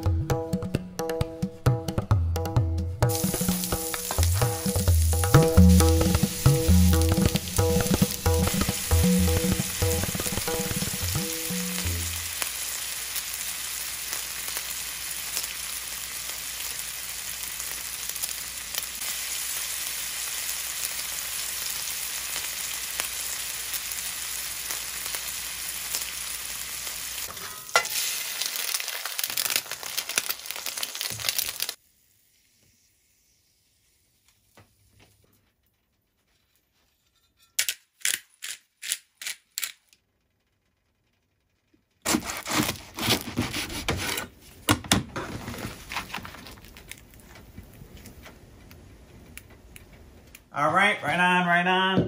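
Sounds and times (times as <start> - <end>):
food sizzling on a griddle: 3.1 - 35.1.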